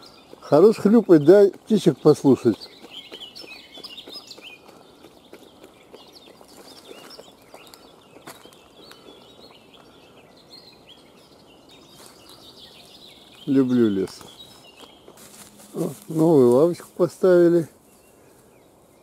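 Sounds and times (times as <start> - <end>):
faint birdsong: 0.0 - 19.0.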